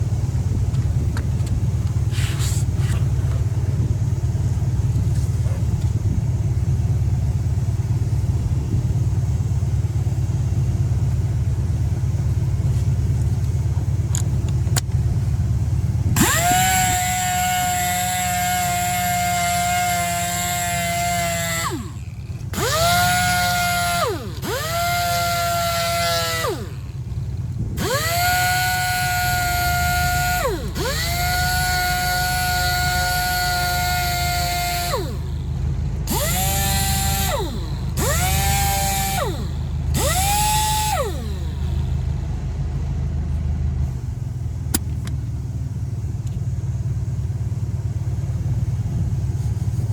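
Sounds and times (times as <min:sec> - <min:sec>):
low steady rumble: 0:00.0 - 0:49.9
rotary power tool whining: 0:16.1 - 0:42.2.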